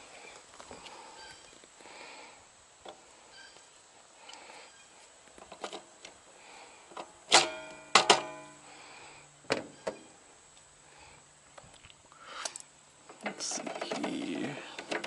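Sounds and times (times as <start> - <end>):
sharp metallic clanks: 7.3 - 8.5.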